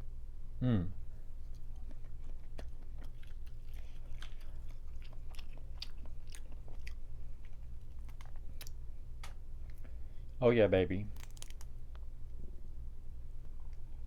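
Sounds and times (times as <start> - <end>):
steady low hum: 0.0 - 14.0
close chewing with wet mouth clicks: 1.4 - 9.8.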